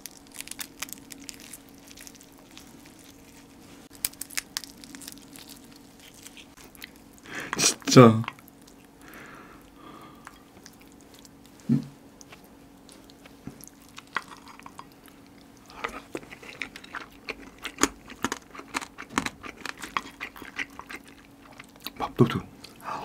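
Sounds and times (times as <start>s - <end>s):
wet chewing smacks: 9.6s - 11.5s, 12.2s - 22.0s.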